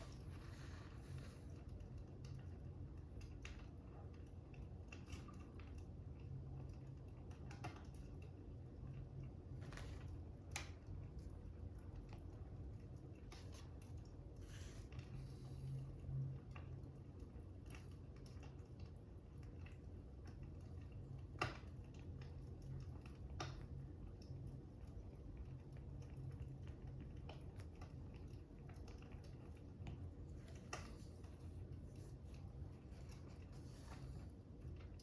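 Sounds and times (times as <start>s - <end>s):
wood fire crackling: 16.6s - 35.0s.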